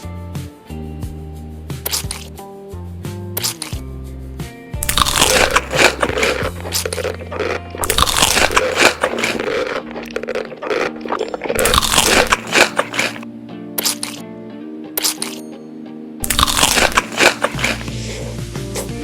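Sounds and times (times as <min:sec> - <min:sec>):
quiet background music: 0:00.0 - 0:19.0
crunchy food chewing: 0:01.9 - 0:02.3, 0:03.4 - 0:03.8, 0:04.8 - 0:14.2, 0:15.0 - 0:15.4, 0:16.2 - 0:19.0.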